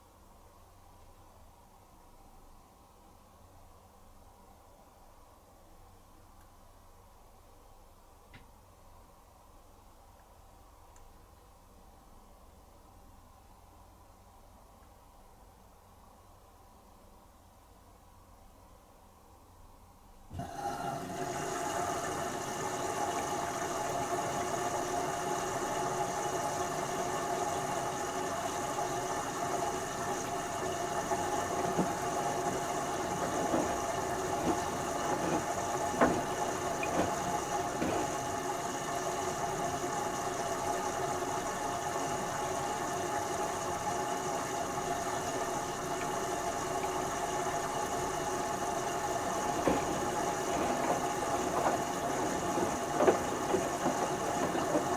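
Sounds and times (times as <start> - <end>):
washing machine motor humming: 20.3 - 54.9
load knocking in drum: 31.4 - 38.4, 49.4 - 54.9.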